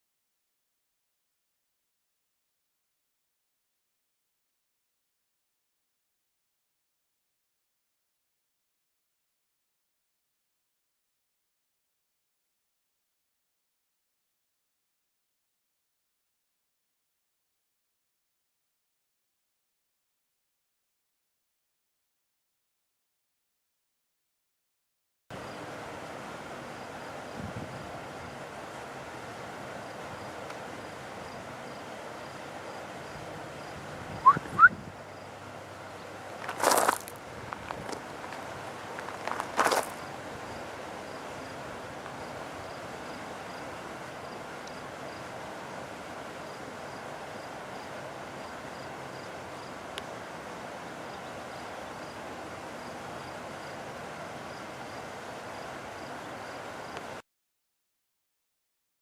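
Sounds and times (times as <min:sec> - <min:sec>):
steady outdoor background hiss: 0:25.3 - 0:57.2
steady rushing noise: 0:25.4 - 0:57.2
bird call notes: 0:34.2 - 0:34.8
faint high chirp: 0:34.2 - 0:35.1.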